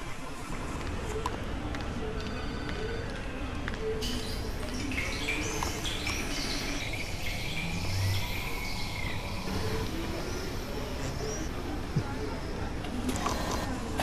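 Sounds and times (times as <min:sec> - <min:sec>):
steady background hiss: 0:00.0 - 0:14.0
birds chirping: 0:04.0 - 0:13.8.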